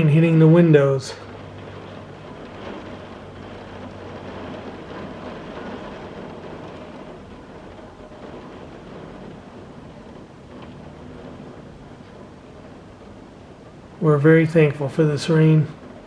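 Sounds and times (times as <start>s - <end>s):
low steady hum: 0.0s - 16.0s
rain hitting window glass: 0.0s - 16.0s.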